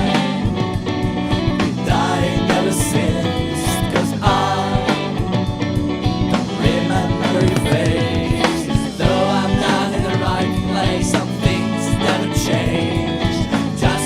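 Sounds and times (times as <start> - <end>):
rock band with sung vocals: 0.0 - 14.0.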